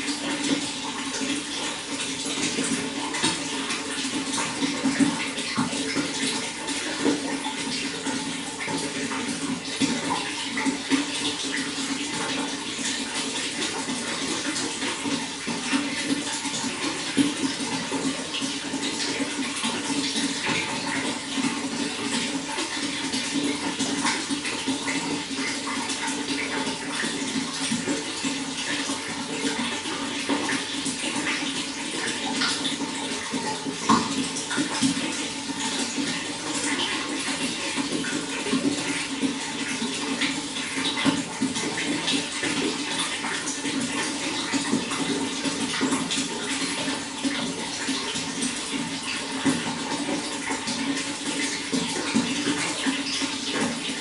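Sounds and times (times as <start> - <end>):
water rushing: 0.0 - 11.4.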